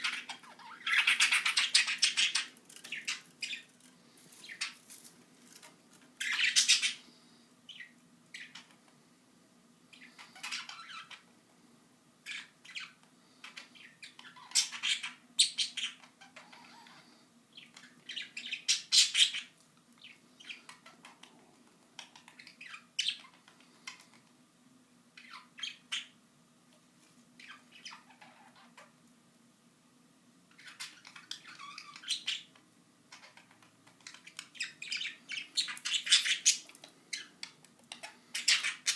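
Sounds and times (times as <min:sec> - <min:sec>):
budgerigars chirping and squawking: 0:00.0 - 0:03.7, 0:04.3 - 0:04.8, 0:06.2 - 0:08.8, 0:09.9 - 0:11.3, 0:12.2 - 0:24.2, 0:25.2 - 0:26.2, 0:27.4 - 0:28.9, 0:30.5 - 0:38.9.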